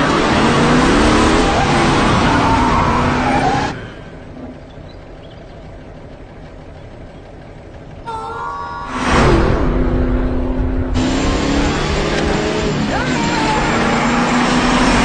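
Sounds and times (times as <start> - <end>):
car engine revving: 0.0 - 3.8, 8.9 - 15.0.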